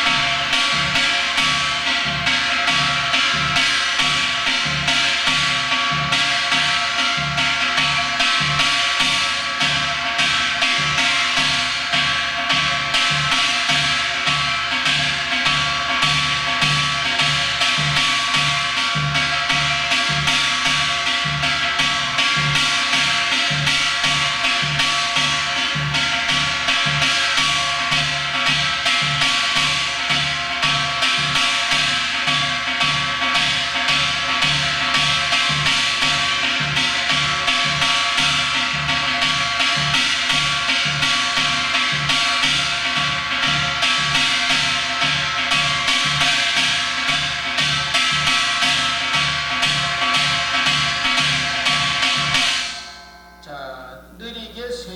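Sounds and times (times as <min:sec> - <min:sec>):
hourglass drum struck with sticks: 0:00.0 - 0:54.8.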